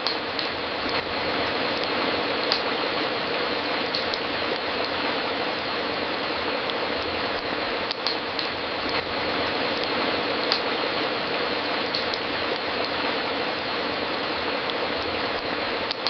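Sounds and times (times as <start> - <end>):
sharp pops of burning wood: 0.0 - 1.1, 1.8 - 2.8, 3.9 - 5.0, 7.4 - 9.1, 9.8 - 10.7, 11.9 - 13.0
fireplace crackling: 0.0 - 16.0.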